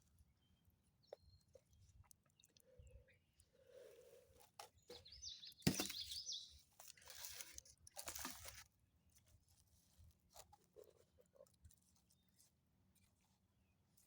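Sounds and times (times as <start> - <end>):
faint crunching and crackling: 0.0 - 14.0
bird warbling call: 5.0 - 6.6.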